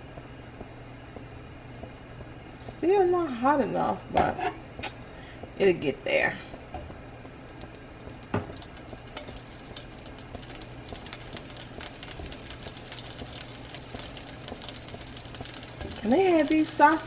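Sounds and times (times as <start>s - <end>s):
sausages sizzling in a pan: 6.6s - 17.0s.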